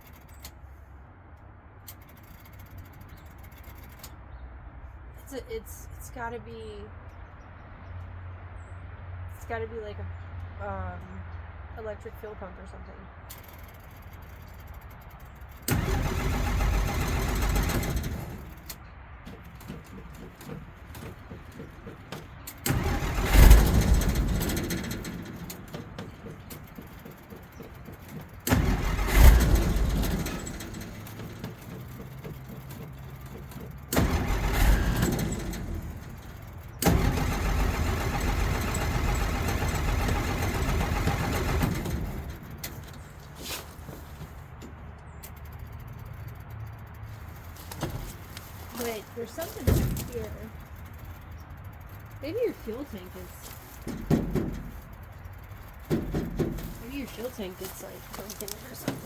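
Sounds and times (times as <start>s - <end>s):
engine cranked by starter: 13.3s - 59.0s.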